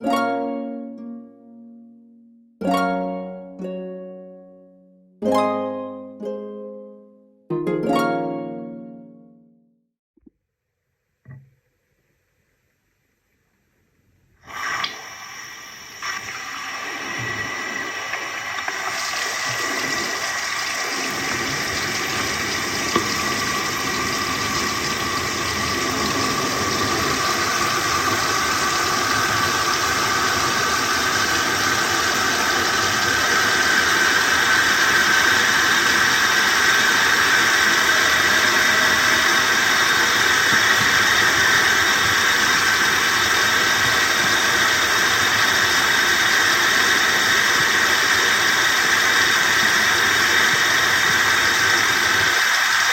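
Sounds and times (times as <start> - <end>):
running water rushing: 14.4 - 52.9.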